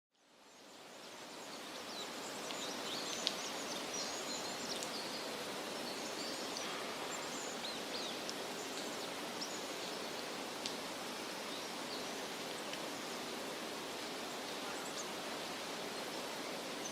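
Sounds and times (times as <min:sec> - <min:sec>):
steady background hiss: 0:00.2 - 0:16.9
small birds chirping: 0:00.5 - 0:10.5.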